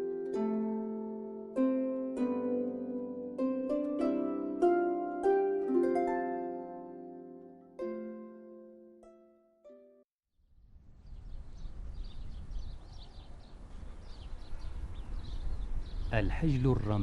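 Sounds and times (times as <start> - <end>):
faint high bird chirps: 11.0 - 16.9.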